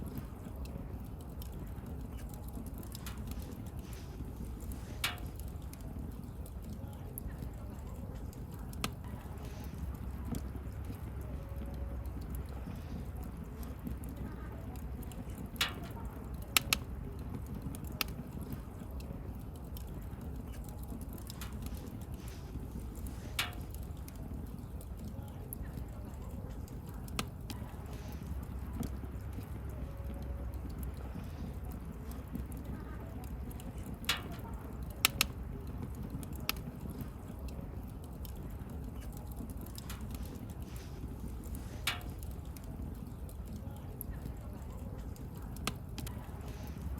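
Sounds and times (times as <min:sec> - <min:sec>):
wood fire crackling: 0:00.0 - 0:46.9
sharp pops of fire: 0:00.1 - 0:07.6, 0:15.0 - 0:25.6, 0:33.5 - 0:43.6.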